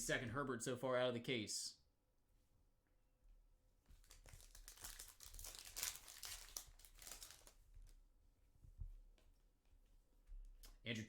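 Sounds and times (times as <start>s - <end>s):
foil wrapper crinkling: 4.0s - 8.0s.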